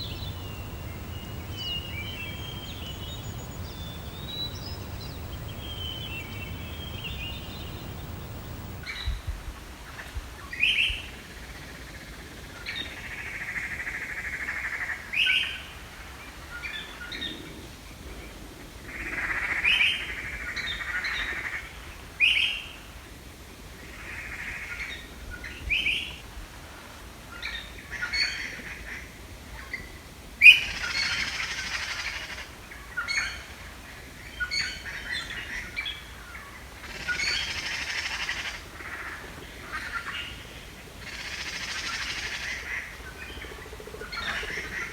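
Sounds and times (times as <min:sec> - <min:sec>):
songbird chirps and buzzy trills: 0:00.0 - 0:08.9.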